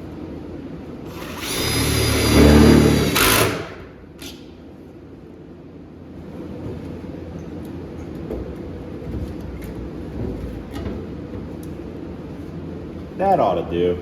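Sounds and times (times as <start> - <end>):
power drill whining: 1.1 - 3.7
drill click: 1.1 - 3.8.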